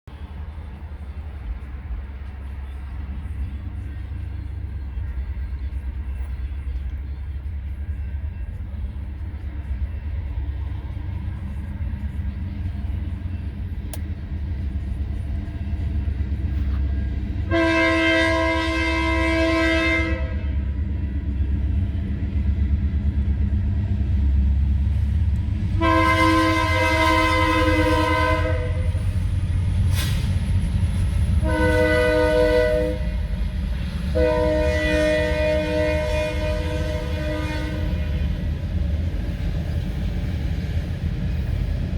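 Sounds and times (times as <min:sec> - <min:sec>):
train rumble: 0:00.1 - 0:41.9
train air horn: 0:17.4 - 0:20.8, 0:25.7 - 0:29.1, 0:31.4 - 0:33.3, 0:34.1 - 0:38.4.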